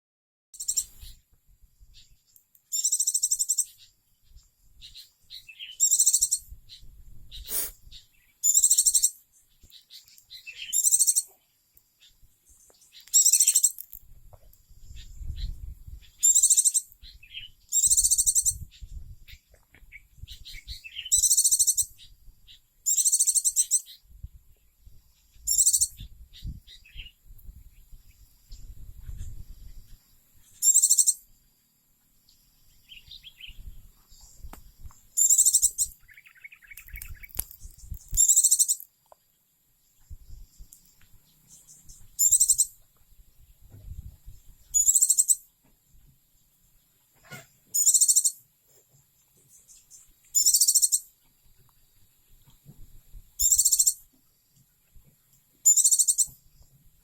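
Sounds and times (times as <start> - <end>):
bird twittering: 0.6 - 1.2, 2.7 - 3.9, 4.8 - 11.4, 12.9 - 13.8, 14.9 - 24.0, 25.4 - 27.2, 30.5 - 31.2, 35.2 - 38.8, 41.5 - 42.8, 44.7 - 45.4, 47.3 - 48.4, 49.6 - 51.1, 53.4 - 54.0, 55.7 - 56.3.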